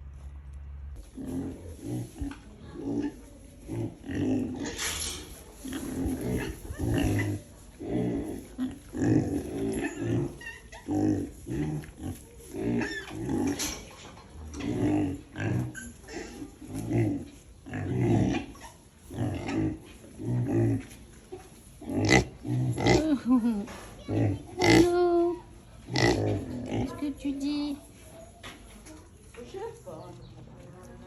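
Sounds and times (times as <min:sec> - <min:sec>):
pig grunting: 0:01.1 - 0:13.8, 0:14.4 - 0:21.0, 0:21.8 - 0:23.4, 0:24.1 - 0:25.0, 0:25.8 - 0:27.1.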